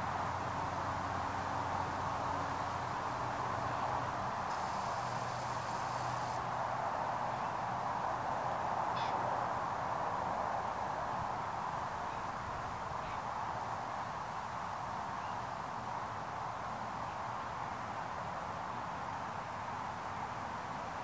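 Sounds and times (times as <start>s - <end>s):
outdoor background hiss: 0.0s - 21.0s
faint bird calls: 8.9s - 9.2s.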